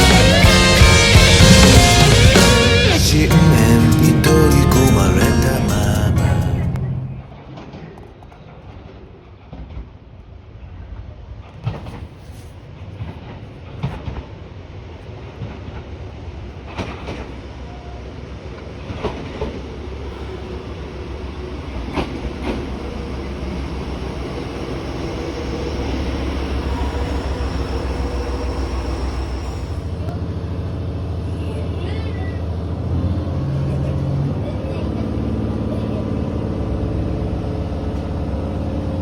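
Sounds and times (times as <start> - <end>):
low rumble: 0.0 - 7.4
railcar running: 0.0 - 39.0.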